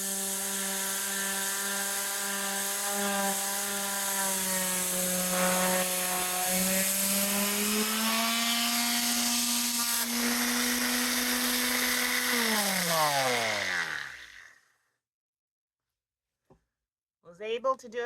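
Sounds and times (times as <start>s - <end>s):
sanding hiss: 0.0s - 14.0s
power sander running: 0.0s - 14.6s.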